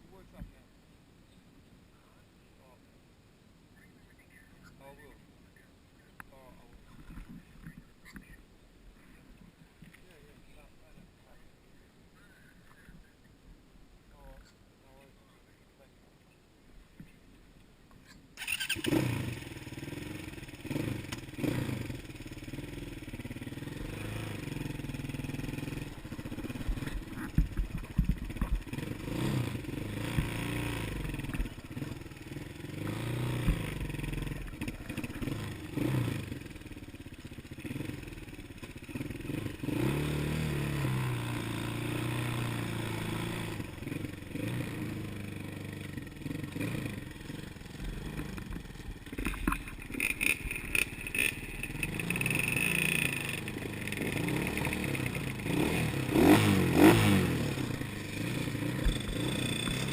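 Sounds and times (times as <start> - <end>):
small off-road engine running: 18.4 - 59.9.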